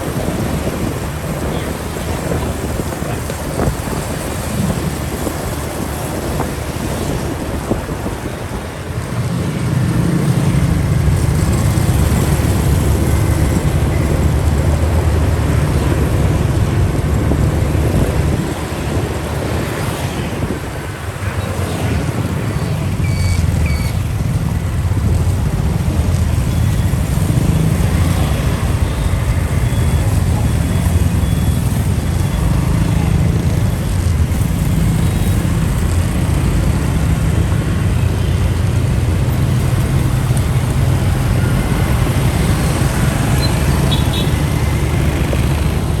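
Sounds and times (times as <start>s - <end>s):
road noise: 0.0s - 46.0s
motorcycle engine running: 22.3s - 46.0s.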